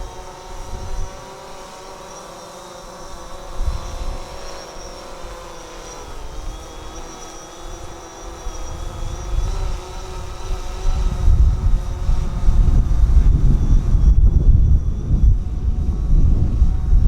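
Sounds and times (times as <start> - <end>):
wind buffeting microphone: 0.0 - 1.2, 8.4 - 17.0
drone propellers humming: 0.0 - 17.0.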